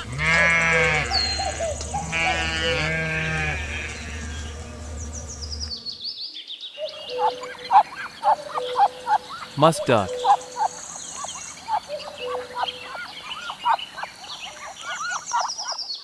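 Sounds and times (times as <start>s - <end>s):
sheep bleating: 0.0s - 4.4s
high chirps and short calls: 6.9s - 15.8s.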